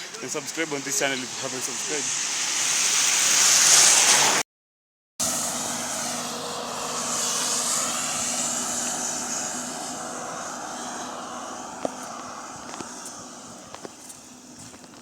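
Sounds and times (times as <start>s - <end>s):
engine drone with hiss: 0.0s - 4.4s, 5.2s - 15.0s.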